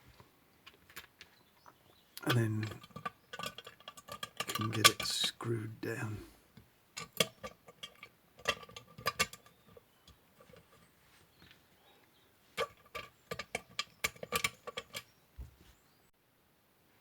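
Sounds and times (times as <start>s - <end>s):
metal parts and tool clinking: 2.2s - 5.3s, 7.0s - 10.9s, 12.6s - 15.1s.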